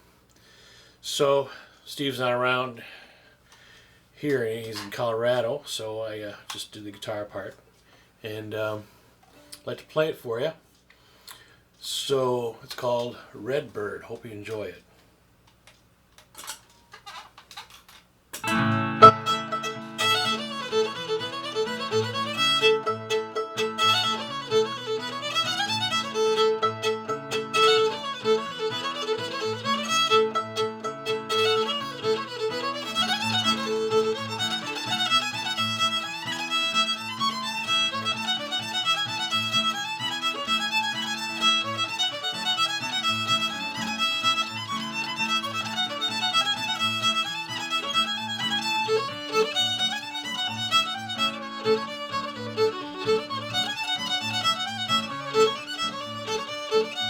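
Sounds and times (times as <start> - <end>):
solo fiddle tune with drone: 18.4 - 57.0.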